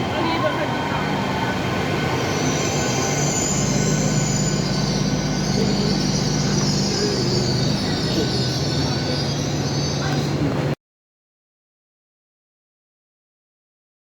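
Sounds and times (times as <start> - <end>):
diesel engines droning: 0.0 - 10.8
train wheel squeal: 0.0 - 10.8.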